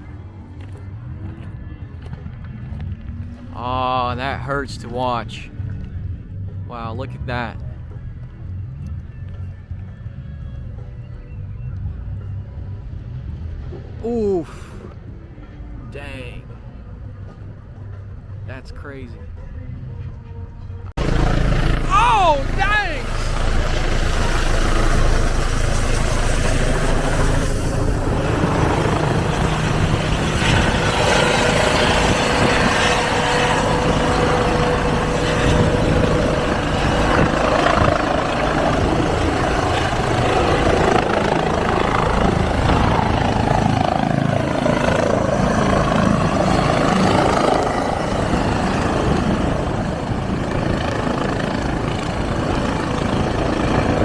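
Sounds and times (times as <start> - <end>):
helicopter whine: 20.9 - 54.0
helicopter rotor chop: 21.0 - 54.0.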